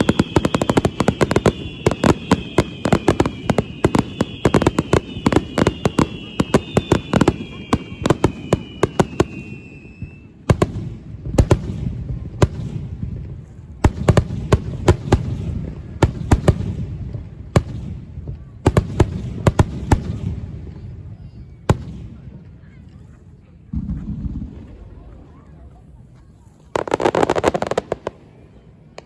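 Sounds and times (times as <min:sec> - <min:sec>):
falling firework whistle: 0:00.0 - 0:10.5
fireworks bangs: 0:00.0 - 0:22.9, 0:23.6 - 0:25.4, 0:26.7 - 0:29.0
fireworks crackling: 0:00.0 - 0:29.0.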